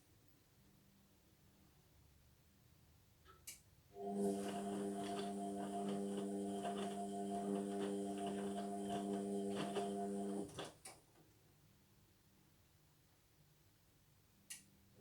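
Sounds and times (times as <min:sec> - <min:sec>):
washing machine humming: 0:04.0 - 0:10.8.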